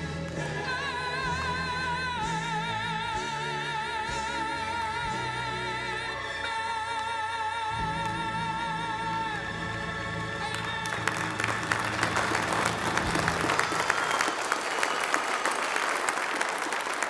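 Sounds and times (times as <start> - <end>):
person singing with vibrato: 0.0 - 13.8
instrumental accompaniment: 0.0 - 14.5
applause: 10.5 - 17.0.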